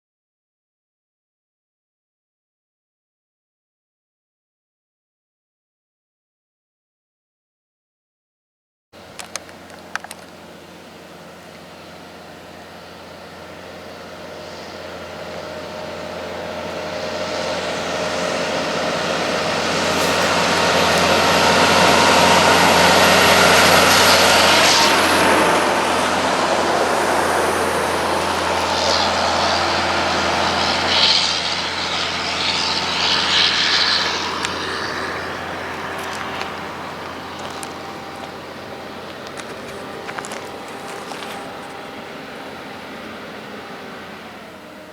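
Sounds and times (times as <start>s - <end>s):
heavy truck passing: 9.0s - 44.9s
tyre noise: 18.0s - 31.4s.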